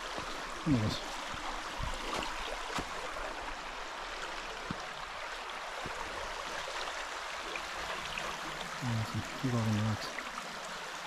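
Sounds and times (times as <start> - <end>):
creek water running over rocks: 0.0 - 11.0.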